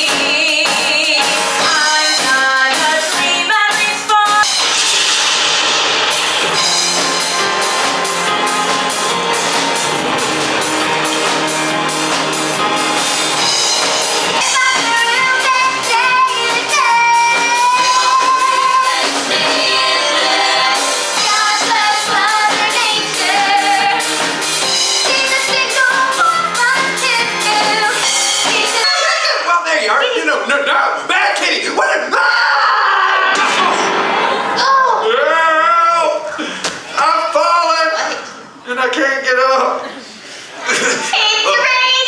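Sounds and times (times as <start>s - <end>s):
woman singing: 0.0s - 4.5s, 14.4s - 28.8s
pop band backing with drum beat: 0.0s - 29.2s, 32.9s - 34.8s.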